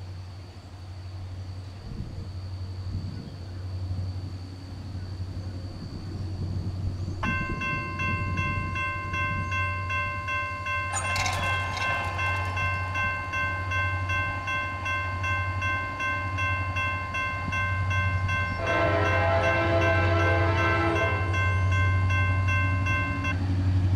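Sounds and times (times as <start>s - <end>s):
locomotive air horn blast: 18.6s - 21.3s.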